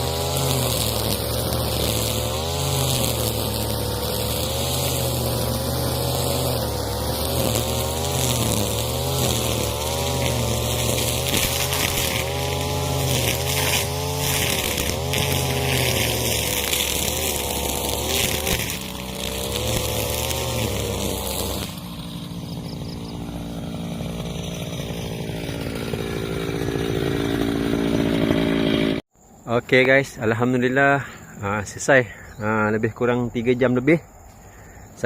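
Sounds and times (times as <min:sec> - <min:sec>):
brushcutter engine cutting grass: 0:00.0 - 0:29.0.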